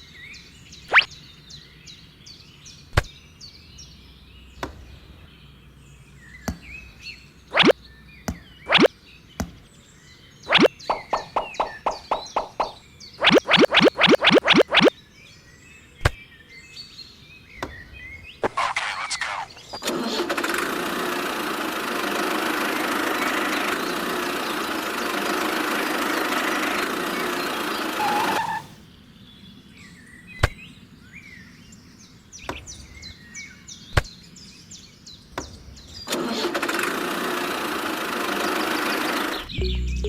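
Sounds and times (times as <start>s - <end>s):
small motor running: 20.4s - 28.8s
short high chirps: 28.0s - 28.8s.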